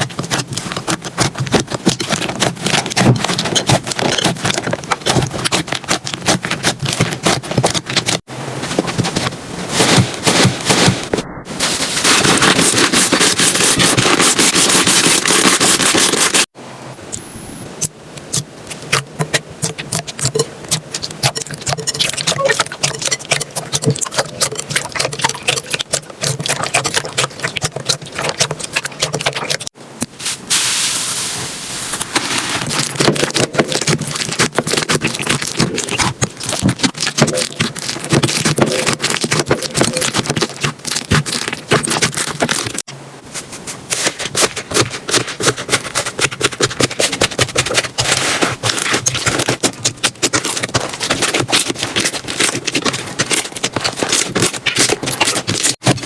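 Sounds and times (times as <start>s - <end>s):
slime squelching with wet pops: 17.8s - 29.7s, 32.7s - 42.9s.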